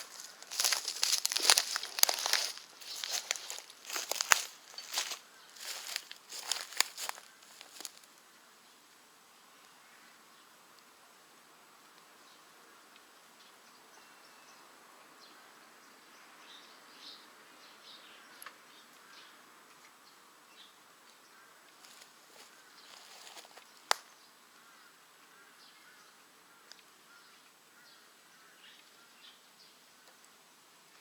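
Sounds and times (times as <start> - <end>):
wood fire crackling: 0.0 - 8.1.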